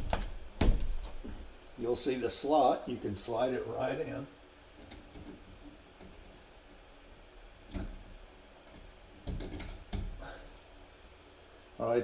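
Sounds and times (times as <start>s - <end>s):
light knocks and clicks of parts: 4.8s - 6.4s, 7.6s - 10.2s.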